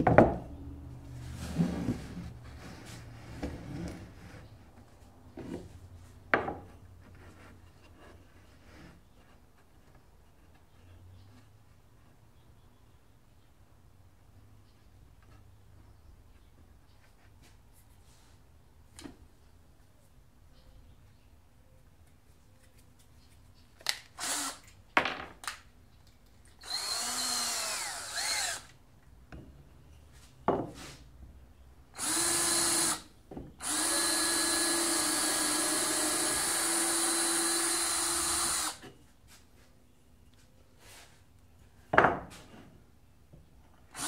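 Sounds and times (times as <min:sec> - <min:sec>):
power drill running: 0:24.2 - 0:24.7, 0:26.6 - 0:28.7, 0:32.0 - 0:33.0, 0:33.6 - 0:38.8.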